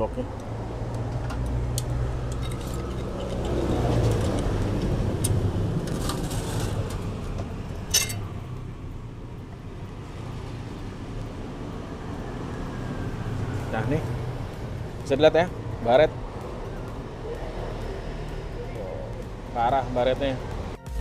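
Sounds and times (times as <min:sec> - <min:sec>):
low rumble of traffic: 0:00.0 - 0:20.8
metal clicks and scraping: 0:00.4 - 0:08.3
sharp metal clink: 0:07.9 - 0:08.3.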